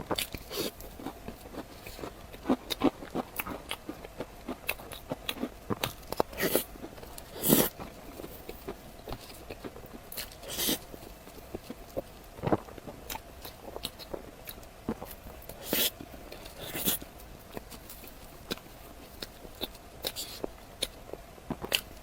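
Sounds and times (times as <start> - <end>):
food crunching: 0.0 - 22.0
person chewing food: 0.0 - 22.0.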